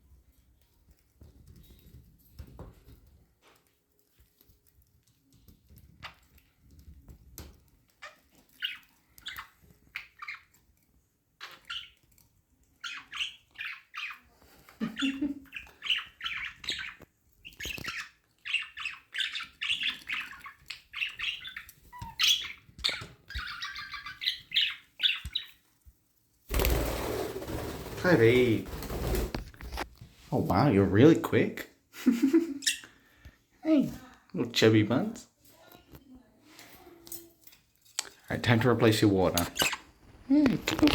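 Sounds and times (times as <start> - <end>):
budgies chirping and chattering: 7.4 - 10.8, 11.4 - 25.7, 32.2 - 33.3, 38.0 - 40.9.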